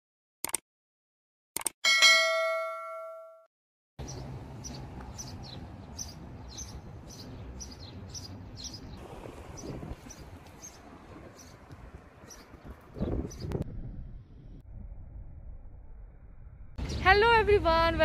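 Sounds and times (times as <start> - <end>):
birds chirping: 4.0 - 13.6
wind rumble on microphone: 7.8 - 17.2.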